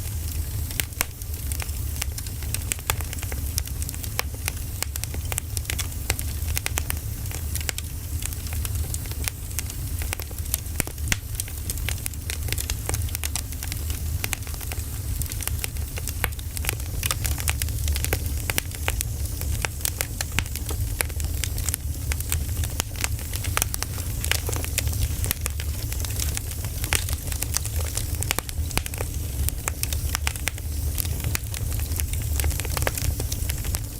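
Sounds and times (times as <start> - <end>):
fire low rumble: 0.0 - 33.9
wood fire crackling and popping: 0.0 - 33.9.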